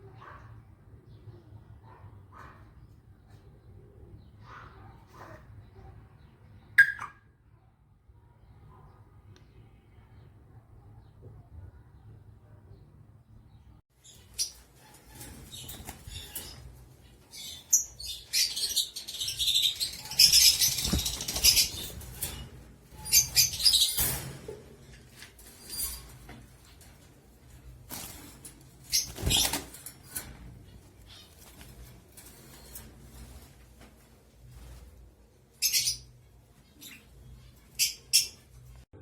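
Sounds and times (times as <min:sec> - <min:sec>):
bird scuffling: 0:19.7 - 0:23.8
cockatiel wings flapping: 0:19.8 - 0:22.4, 0:27.8 - 0:30.2.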